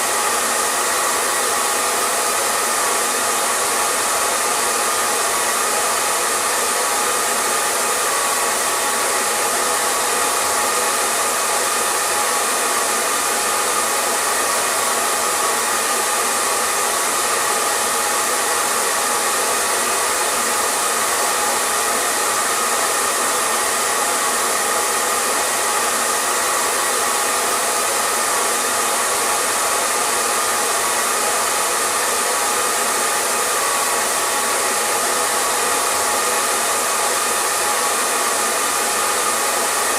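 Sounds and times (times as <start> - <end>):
hair dryer blowing air: 0.0 - 39.9.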